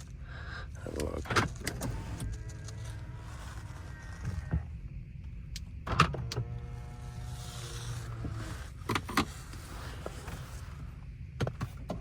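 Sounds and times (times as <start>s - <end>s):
electric motor whining: 6.0s - 10.9s.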